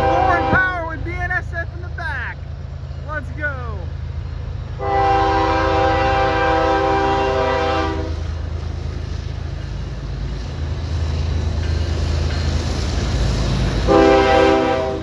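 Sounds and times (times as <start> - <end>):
locomotive air horn chord: 0.0 - 0.7, 4.8 - 8.2, 13.9 - 15.0
diesel engines rumbling: 0.0 - 15.0.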